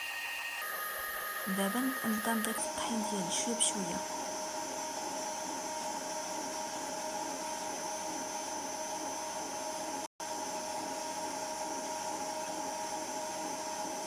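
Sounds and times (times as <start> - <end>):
stand mixer motor whining: 0.0 - 2.8.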